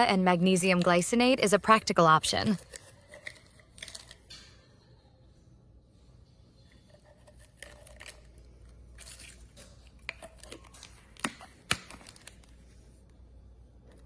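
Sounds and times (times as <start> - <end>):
light crinkling handling noise: 2.6 - 4.6, 6.8 - 13.2.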